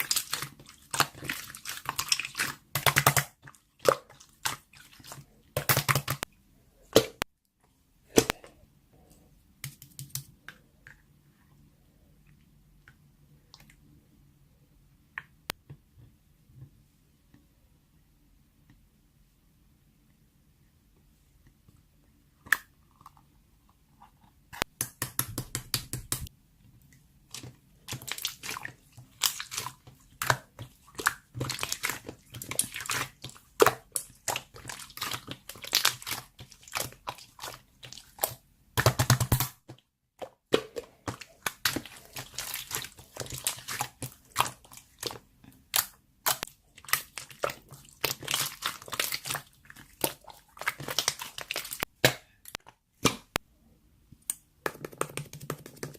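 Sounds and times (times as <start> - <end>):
slime crackling and squelching: 0.0 - 6.3, 27.3 - 39.7, 40.3 - 53.3.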